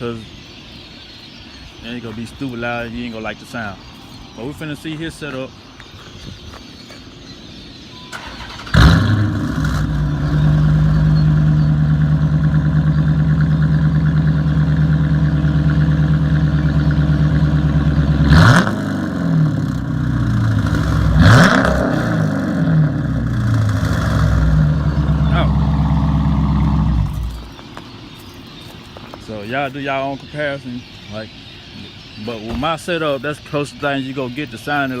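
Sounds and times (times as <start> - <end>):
car engine starting and idling: 8.0 - 27.5
engine revving: 8.1 - 27.5.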